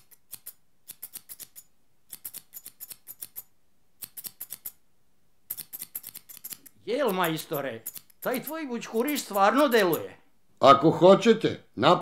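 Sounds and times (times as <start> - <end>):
scissors snipping hair: 0.0 - 4.8, 5.5 - 10.2.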